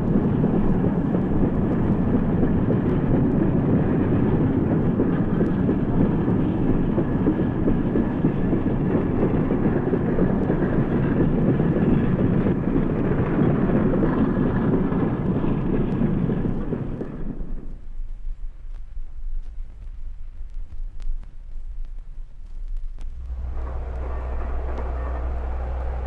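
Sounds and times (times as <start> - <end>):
steam locomotive running: 0.0 - 17.7, 23.1 - 26.0
faint low hum: 0.0 - 26.0.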